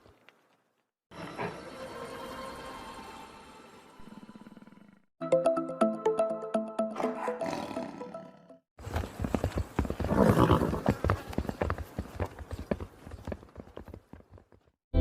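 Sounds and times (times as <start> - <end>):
hooves clattering: 8.8 - 14.7
horse neighing: 10.1 - 11.0.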